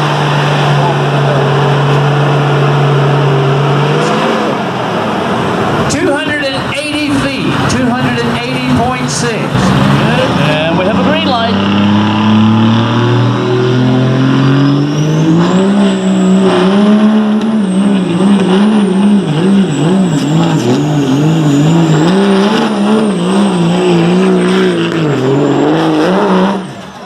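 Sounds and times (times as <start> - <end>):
diesel truck engine at full throttle: 0.0 - 27.0
high turbo whistle: 13.3 - 27.0.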